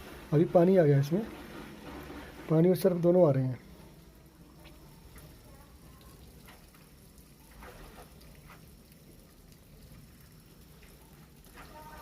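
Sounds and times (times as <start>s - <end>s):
water trickling into washing machine: 0.0s - 12.0s
soft water splashes: 3.6s - 12.0s.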